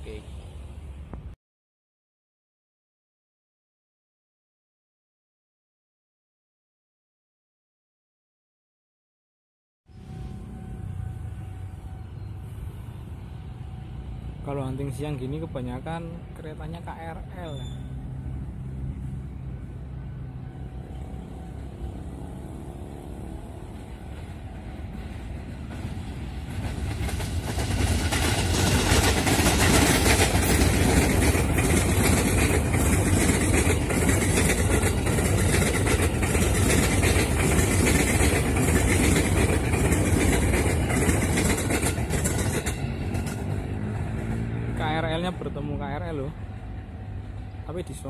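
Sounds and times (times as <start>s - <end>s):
train passing on rails: 0.0s - 1.4s, 9.9s - 48.0s
rhythmic wheel clacks: 27.9s - 43.3s.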